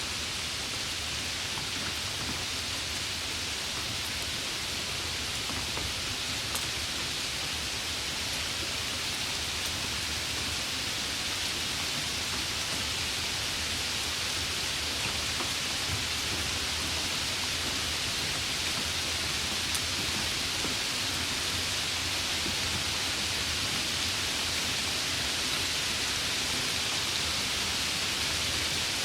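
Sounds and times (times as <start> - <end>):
steady rain hiss: 0.0 - 29.0
faint raindrop ticks: 1.5 - 7.6, 8.6 - 23.4.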